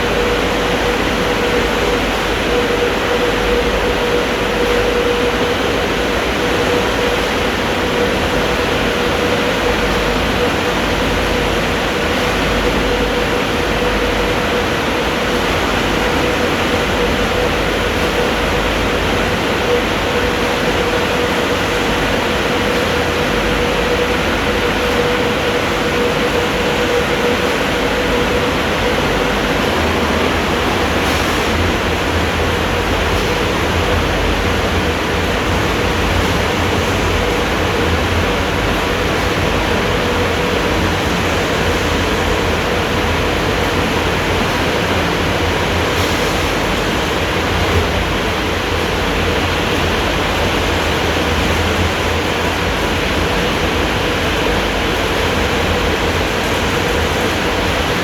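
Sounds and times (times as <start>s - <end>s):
car wash machine rushing: 0.0s - 58.0s
constant hum: 0.0s - 58.0s.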